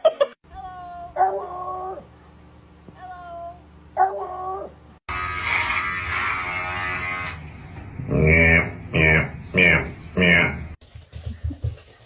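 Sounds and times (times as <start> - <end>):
loud harsh buzzing: 5.1 - 10.0.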